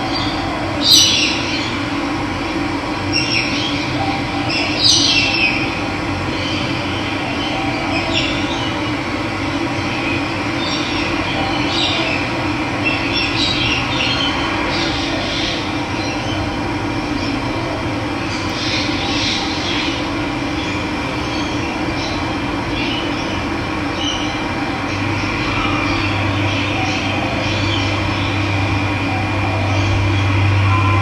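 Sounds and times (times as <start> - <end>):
birds chirping: 0.0 - 2.0, 18.2 - 31.0.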